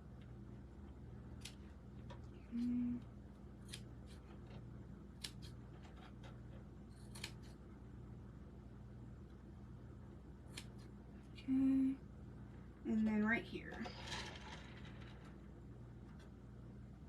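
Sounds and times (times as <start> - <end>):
faint low hum: 0.0 - 17.0
scissors snipping fabric: 7.0 - 7.6, 10.5 - 10.9.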